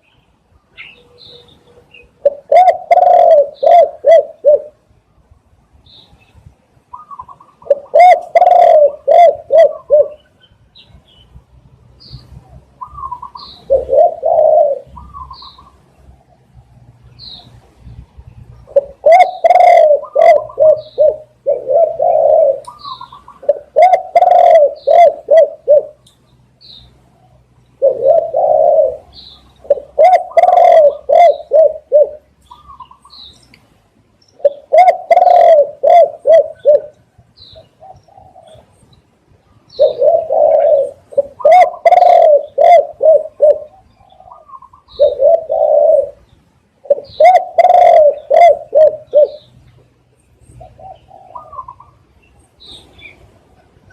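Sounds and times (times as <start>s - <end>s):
doves cooing: 0.8s - 4.8s, 6.9s - 10.3s, 12.3s - 16.5s, 18.6s - 26.0s, 27.2s - 33.2s, 34.4s - 38.8s, 39.6s - 49.6s, 50.5s - 53.9s.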